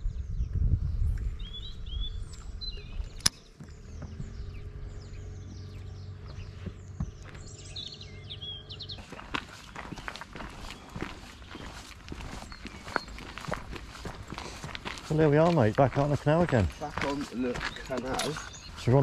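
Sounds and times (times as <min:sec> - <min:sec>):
low rumble: 0:00.0 - 0:18.9
small birds chirping: 0:00.0 - 0:19.0
sharp click: 0:03.1 - 0:03.4.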